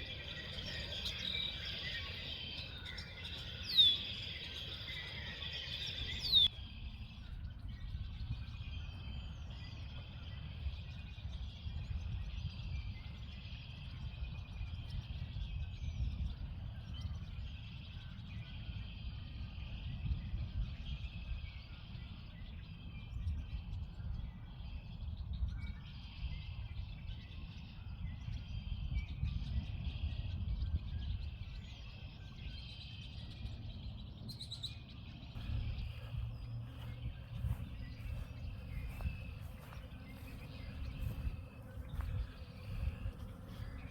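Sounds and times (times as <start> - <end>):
chorus of trilling calls: 0.0 - 6.5, 35.4 - 43.9
birds chirping: 0.0 - 43.9.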